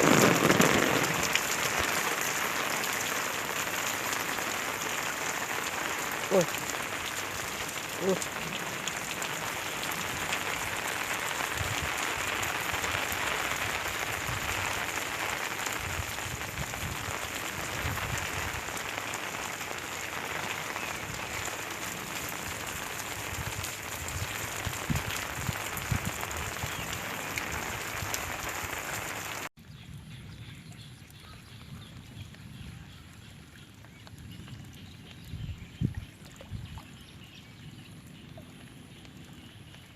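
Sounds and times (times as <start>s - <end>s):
heavy rain falling: 0.0s - 29.5s.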